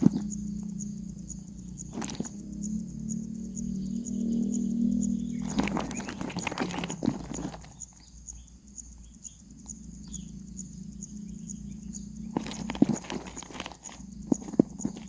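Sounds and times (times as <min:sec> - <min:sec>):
rustling and tapping: 0:00.0 - 0:00.7, 0:01.8 - 0:02.4, 0:05.4 - 0:08.4, 0:12.2 - 0:15.0
steady low hum: 0:00.0 - 0:15.0.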